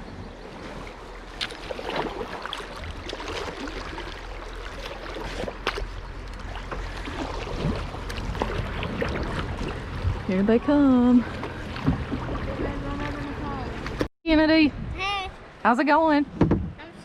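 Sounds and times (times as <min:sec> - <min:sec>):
river water splashing: 0:00.0 - 0:14.1
knocks against boat: 0:11.3 - 0:12.4, 0:16.3 - 0:16.8.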